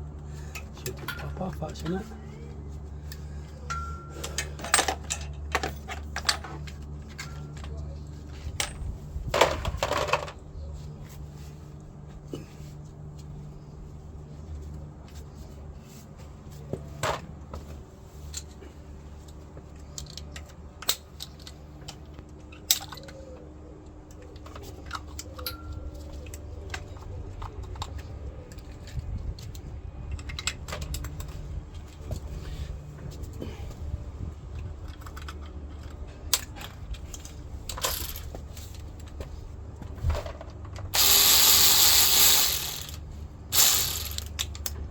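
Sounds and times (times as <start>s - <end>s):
steady low hum: 0.0s - 44.9s
tools clicking and tapping metal: 40.5s - 44.8s.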